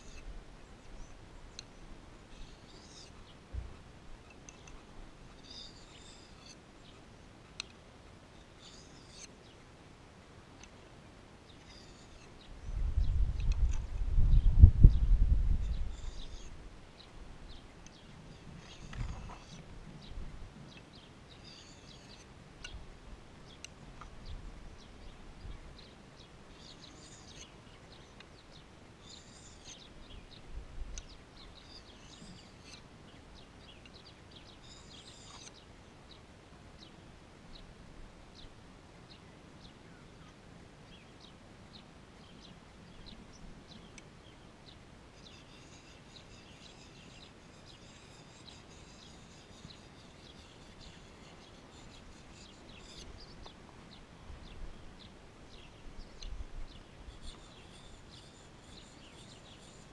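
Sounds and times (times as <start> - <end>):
birds chirping: 11.4 - 22.8, 23.4 - 37.7, 39.1 - 59.9.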